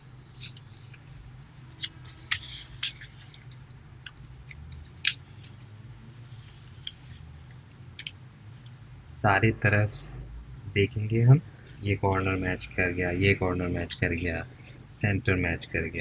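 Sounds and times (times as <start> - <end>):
paper being folded and creased: 0.4 - 7.6.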